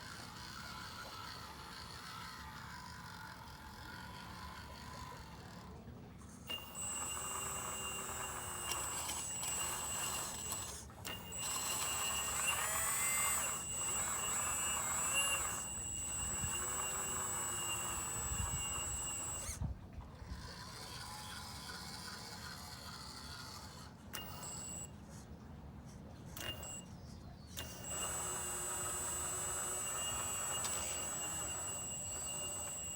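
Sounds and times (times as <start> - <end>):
faint hum: 2.7 - 21.3, 23.7 - 32.9
hydraulic pump whining: 6.4 - 24.9, 26.4 - 26.9, 27.6 - 32.9.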